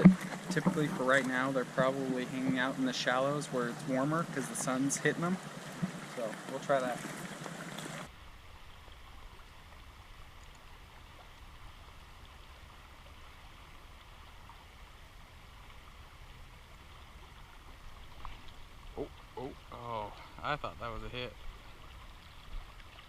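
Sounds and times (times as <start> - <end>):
river water rushing: 0.0 - 8.1.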